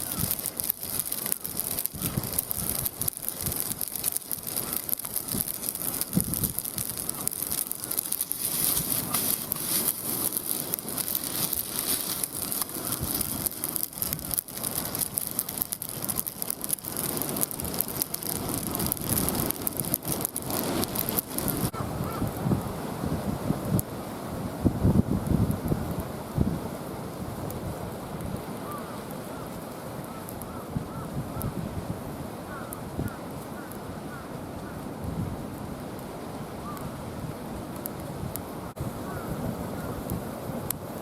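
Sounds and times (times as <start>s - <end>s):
sharp pops of fire: 0.0s - 22.6s, 28.2s - 31.6s
campfire crackling and sizzling: 0.0s - 41.0s.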